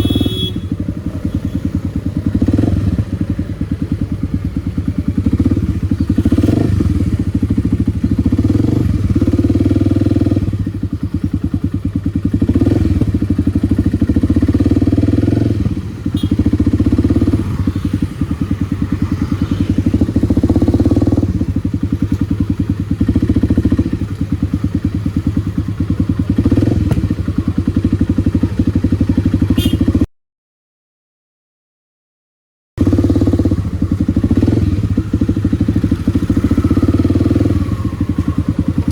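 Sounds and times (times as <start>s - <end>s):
motorcycle engine revving: 0.0s - 30.1s, 32.8s - 38.9s.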